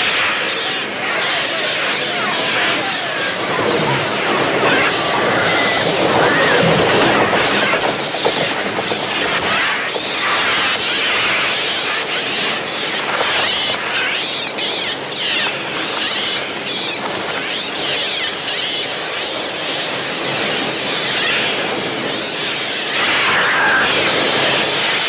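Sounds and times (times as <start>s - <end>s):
gulls crying shrilly: 5.4s - 19.2s, 19.9s - 25.0s.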